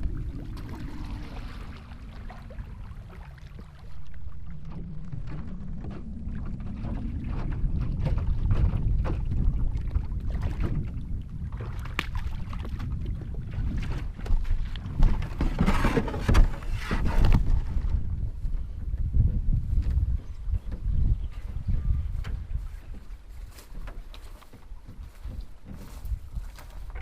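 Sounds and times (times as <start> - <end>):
paddle splashing through water: 0.0 - 19.1
wind buffeting microphone: 0.0 - 27.0.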